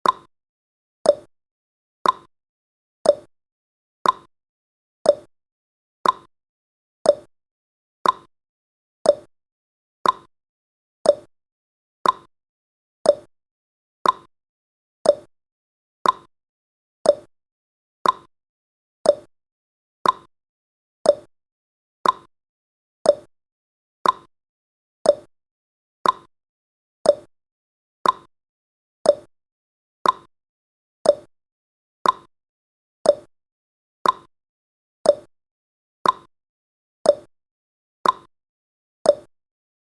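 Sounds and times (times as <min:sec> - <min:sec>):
clock-like timer ticking: 0:00.0 - 0:00.3, 0:01.1 - 0:01.3, 0:02.0 - 0:02.3, 0:03.1 - 0:03.3, 0:04.0 - 0:04.3, 0:05.1 - 0:05.3, 0:06.0 - 0:06.3, 0:07.1 - 0:07.3, 0:08.0 - 0:08.3, 0:09.1 - 0:09.3, 0:10.0 - 0:10.3, 0:11.1 - 0:11.3, 0:12.0 - 0:12.3, 0:13.1 - 0:13.3, 0:14.0 - 0:14.3, 0:15.0 - 0:15.3, 0:16.0 - 0:16.3, 0:17.0 - 0:17.3, 0:18.0 - 0:18.3, 0:19.0 - 0:19.3, 0:20.0 - 0:20.3, 0:21.0 - 0:21.3, 0:22.0 - 0:22.3, 0:23.0 - 0:23.3, 0:24.0 - 0:24.3, 0:25.0 - 0:25.3, 0:26.0 - 0:26.3, 0:27.0 - 0:27.3, 0:28.0 - 0:28.3, 0:29.0 - 0:29.3, 0:30.0 - 0:30.3, 0:31.0 - 0:31.3, 0:32.0 - 0:32.3, 0:33.0 - 0:33.3, 0:34.0 - 0:34.3, 0:35.1 - 0:35.3, 0:36.0 - 0:36.3, 0:37.1 - 0:37.3, 0:38.0 - 0:38.3, 0:39.1 - 0:39.3.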